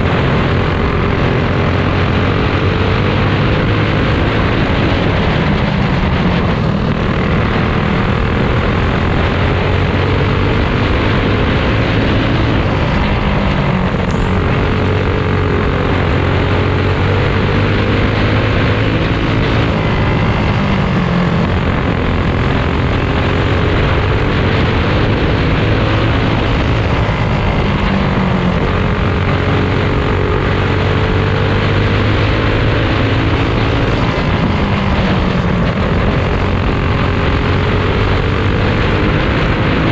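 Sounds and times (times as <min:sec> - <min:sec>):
go-kart engines buzzing: 0:00.0 - 0:39.9.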